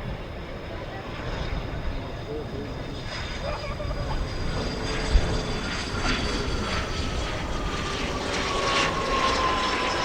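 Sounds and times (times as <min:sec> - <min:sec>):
airliner engines rumbling and whining: 0:00.0 - 0:10.0.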